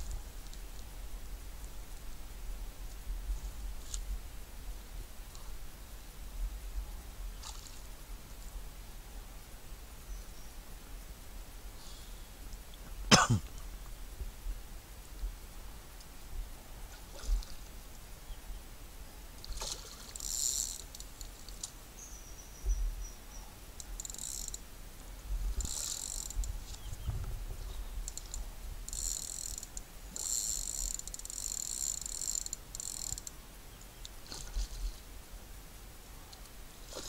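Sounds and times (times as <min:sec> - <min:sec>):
fishing reel clicking: 0:19.8 - 0:21.7, 0:23.8 - 0:24.6, 0:25.6 - 0:26.5, 0:28.1 - 0:33.3.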